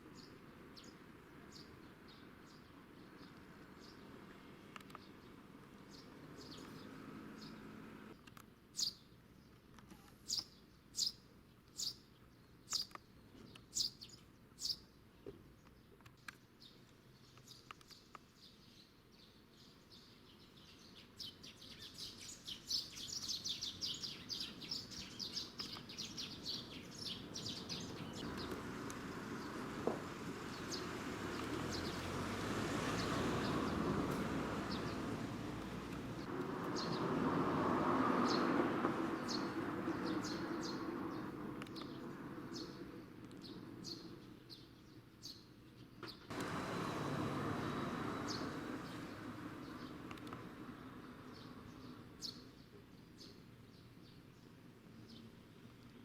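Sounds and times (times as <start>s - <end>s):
birds chirping: 0.0s - 56.0s
vehicle passing: 5.8s - 8.2s, 26.4s - 42.9s, 46.3s - 52.2s
rapid bird twittering: 10.2s - 14.9s, 19.6s - 28.6s.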